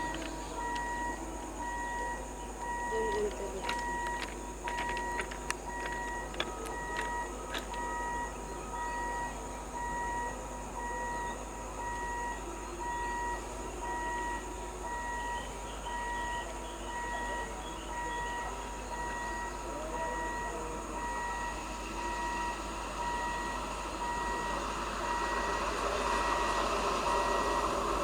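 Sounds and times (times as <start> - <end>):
sharp clicks: 0.0 - 1.0, 2.6 - 8.0
two-tone electronic warning beeper: 0.0 - 27.7.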